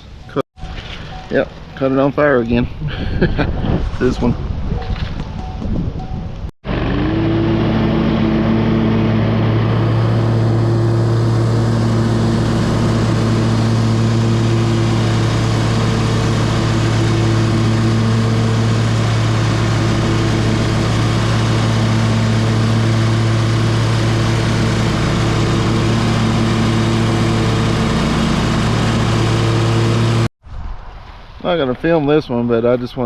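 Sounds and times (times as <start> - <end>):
ride-on lawn mower engine running: 6.6 - 30.3.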